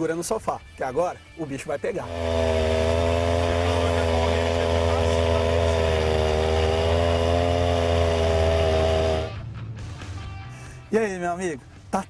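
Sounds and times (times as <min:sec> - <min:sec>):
chainsaw cutting wood: 0:02.0 - 0:09.4.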